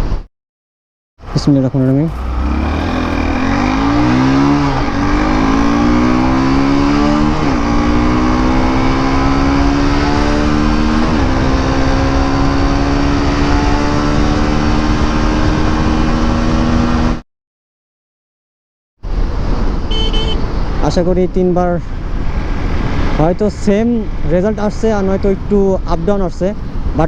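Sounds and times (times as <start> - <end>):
motorcycle engine accelerating: 2.0 - 17.2.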